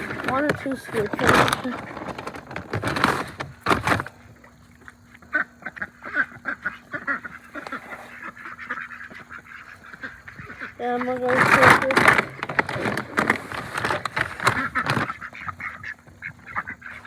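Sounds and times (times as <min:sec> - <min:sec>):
ducks quacking: 0:04.2 - 0:17.0.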